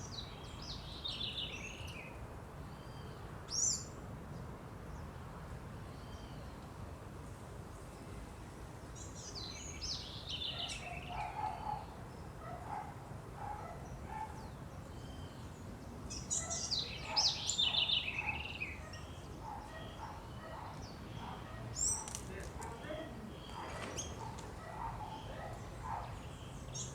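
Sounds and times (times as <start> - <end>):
trilled bird songs: 9.0 - 12.9, 13.6 - 26.9.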